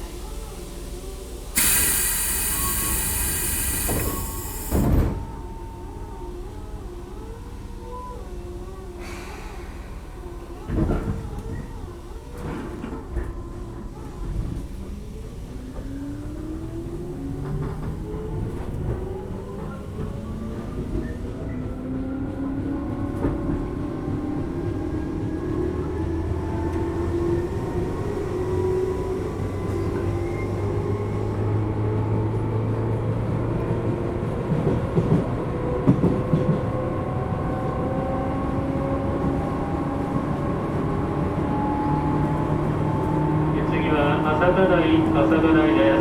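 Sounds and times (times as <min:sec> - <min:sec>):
electric train motor whine: 0:01.6 - 0:06.5.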